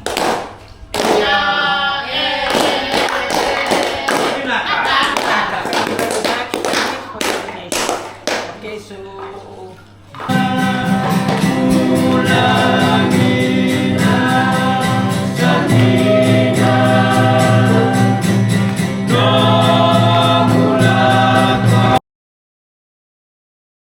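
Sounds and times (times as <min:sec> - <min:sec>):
choir singing: 0:01.1 - 0:05.6, 0:10.2 - 0:22.0
steady beat: 0:10.3 - 0:22.0.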